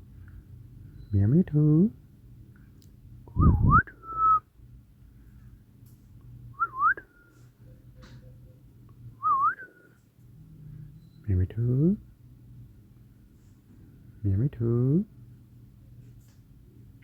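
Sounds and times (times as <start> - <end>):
person whistling: 3.4 - 4.4, 6.6 - 7.0, 9.2 - 9.8.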